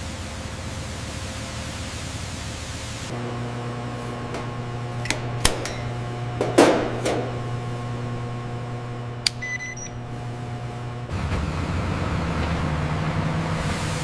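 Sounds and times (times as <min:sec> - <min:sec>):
steady machine hum: 0:02.8 - 0:14.0
sharp clicks: 0:04.3 - 0:05.9, 0:09.2 - 0:09.9.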